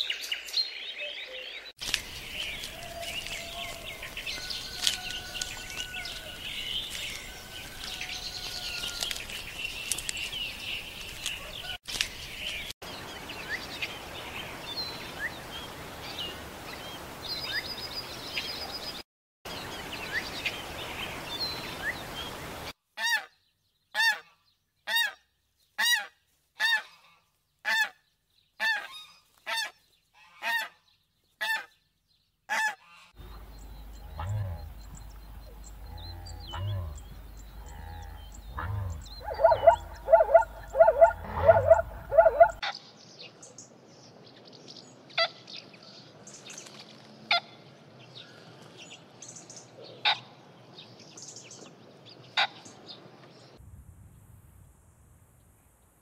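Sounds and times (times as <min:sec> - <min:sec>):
small birds chirping: 0:28.1 - 0:47.0
loud honking bird calls: 0:37.6 - 0:42.6.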